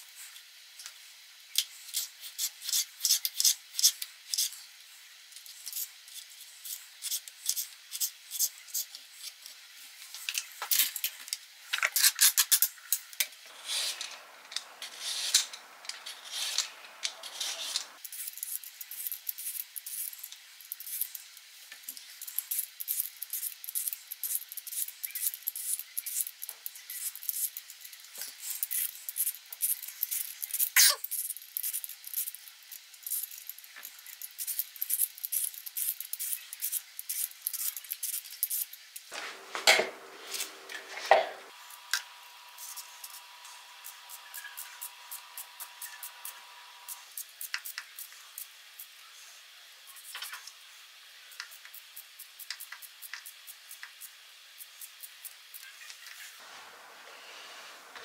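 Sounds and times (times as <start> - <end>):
steady hiss: 12.5 - 58.0.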